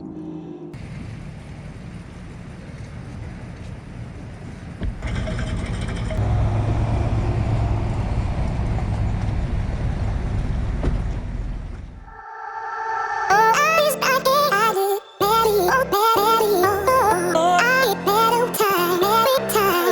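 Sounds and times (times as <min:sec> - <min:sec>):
wind: 0:00.8 - 0:13.3.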